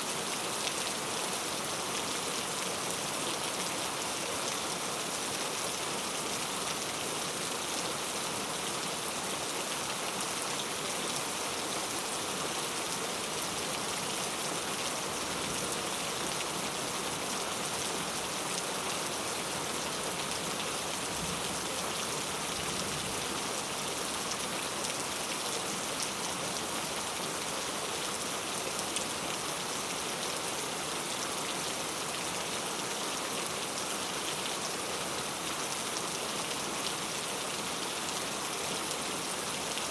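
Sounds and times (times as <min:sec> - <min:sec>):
heavy rain on hard street: 0:00.0 - 0:39.9.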